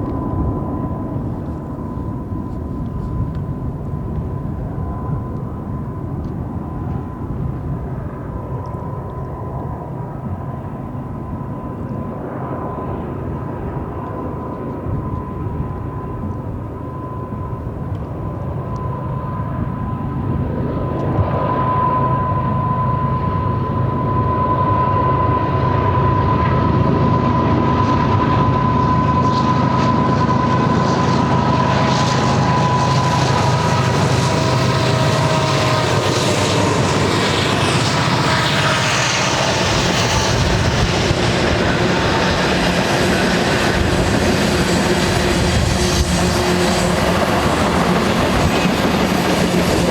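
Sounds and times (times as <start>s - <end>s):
diesel locomotives running: 25.8s - 49.9s.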